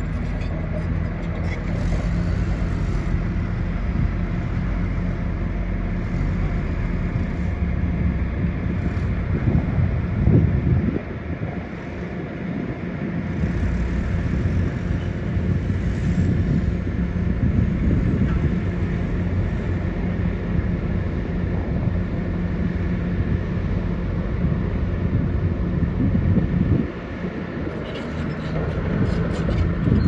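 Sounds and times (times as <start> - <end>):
heavy diesel machinery running: 0.0 - 30.0.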